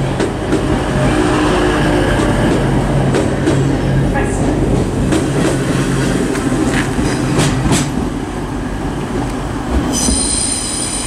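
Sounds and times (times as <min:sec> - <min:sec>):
train rumble: 0:00.0 - 0:11.0
high metallic squeal: 0:09.9 - 0:11.0.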